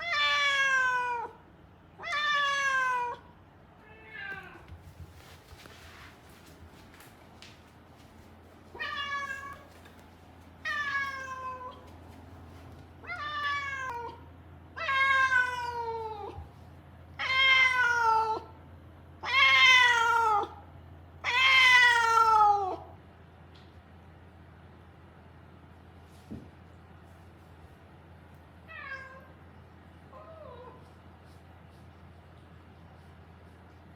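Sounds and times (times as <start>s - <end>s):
cat meowing loudly: 0.0s - 1.4s, 2.0s - 4.7s, 8.7s - 9.7s, 13.0s - 14.2s, 14.8s - 16.4s, 17.2s - 18.5s, 19.2s - 20.6s, 21.2s - 22.9s.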